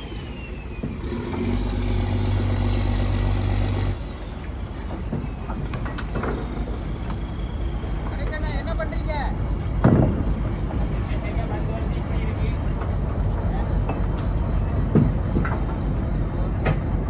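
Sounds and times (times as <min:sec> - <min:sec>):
machinery humming: 0:00.0 - 0:17.0
knocks and clatters: 0:04.7 - 0:07.3, 0:09.7 - 0:11.6, 0:12.5 - 0:17.0.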